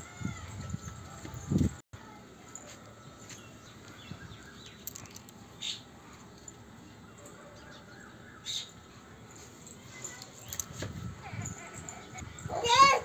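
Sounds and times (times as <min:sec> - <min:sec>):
distant birds chirping: 0:02.9 - 0:09.4, 0:10.4 - 0:12.6.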